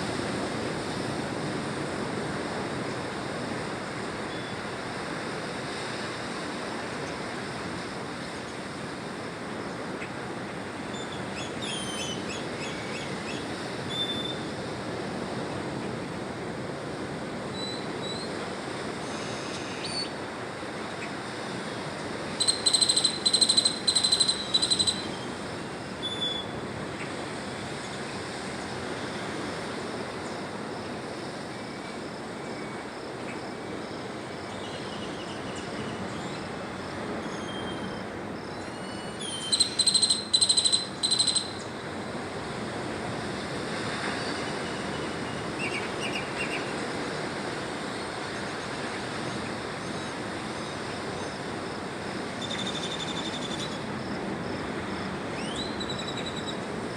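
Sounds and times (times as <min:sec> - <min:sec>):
steady rushing background noise: 0:00.0 - 0:56.9
bird calling high notes: 0:22.4 - 0:25.4
faint bird chirps: 0:37.2 - 0:41.7, 0:55.4 - 0:56.6.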